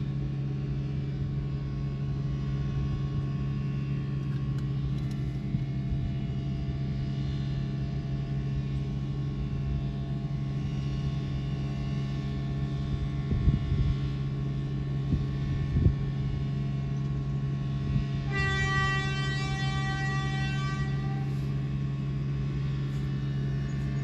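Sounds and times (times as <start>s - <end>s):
diesel train low drone: 0.0s - 24.0s
train horn steady chord: 17.8s - 23.9s.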